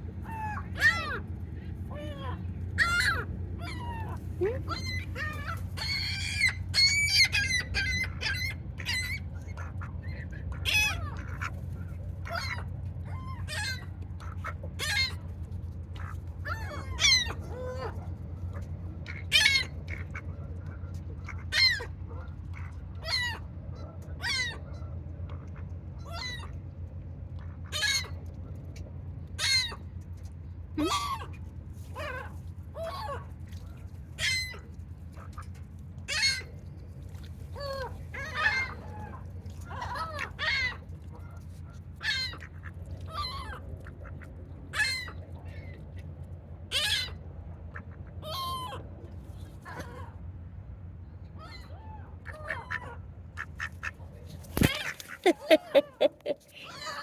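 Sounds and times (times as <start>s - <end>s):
steady low hum: 0.0s - 57.0s
gulls calling: 54.4s - 57.0s.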